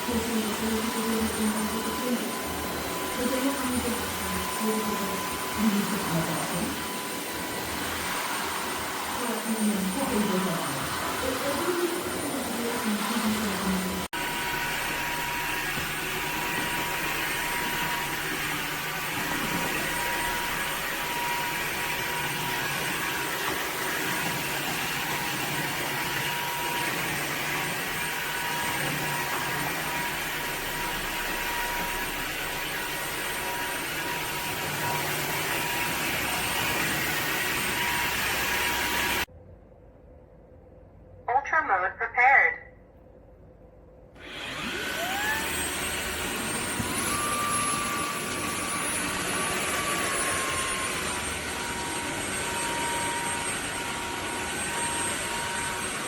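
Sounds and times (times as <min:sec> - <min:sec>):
wet-dry vacuum motor whine: 0:00.0 - 0:39.3, 0:44.2 - 0:56.0.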